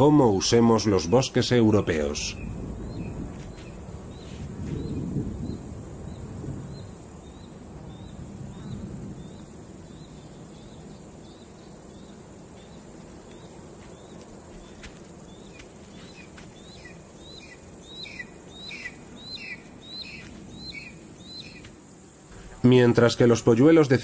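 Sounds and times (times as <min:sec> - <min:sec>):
outdoor background hiss: 0:00.0 - 0:24.0
bird chirping: 0:00.7 - 0:21.7.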